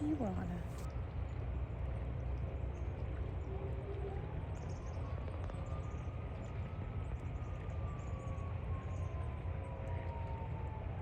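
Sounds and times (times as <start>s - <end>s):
low outdoor rumble: 0.0s - 11.0s
faint siren rising in pitch: 3.4s - 11.0s.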